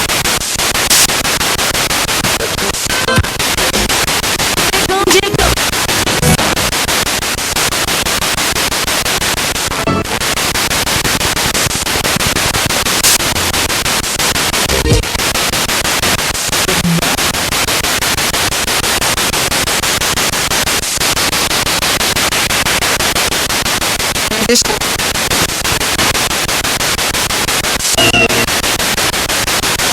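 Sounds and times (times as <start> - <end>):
radio static stuttering: 0.0 - 29.9
snatches of broadcast sound: 0.0 - 29.9.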